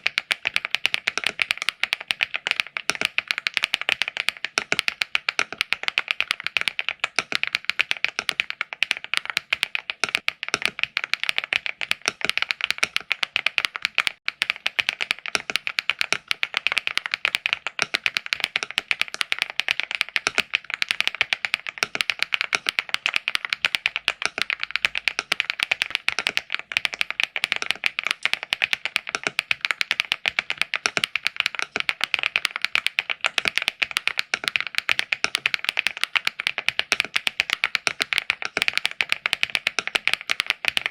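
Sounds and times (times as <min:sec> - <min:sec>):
fast mechanical keyboard typing: 0:00.0 - 0:40.9.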